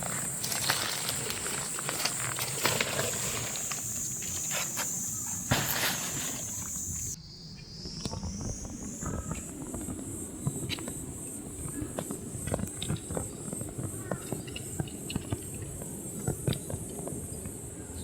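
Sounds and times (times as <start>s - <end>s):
leaves and twigs crackling underfoot: 0.0s - 7.2s
insects chirring: 0.0s - 18.0s.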